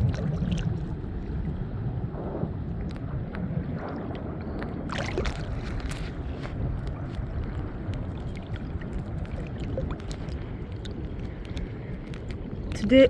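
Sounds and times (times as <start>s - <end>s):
wind rumbling on microphone: 0.0s - 13.0s
faint clicks: 6.8s - 13.0s.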